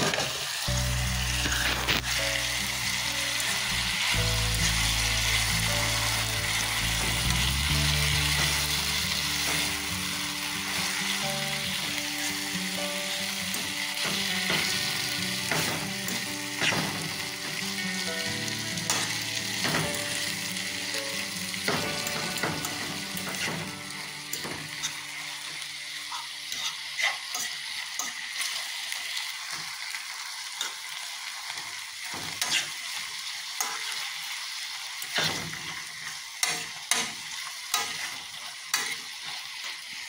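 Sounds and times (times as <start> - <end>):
fish sizzling in a frying pan: 0.0 - 40.0
background music: 0.5 - 26.9.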